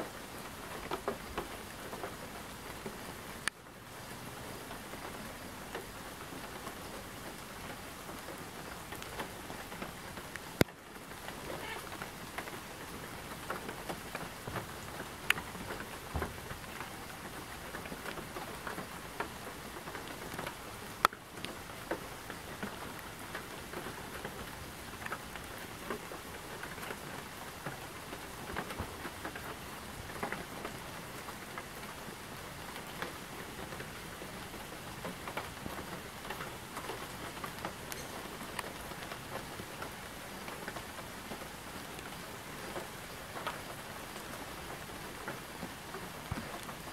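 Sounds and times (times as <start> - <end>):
rain drops pattering: 0.0 - 46.9.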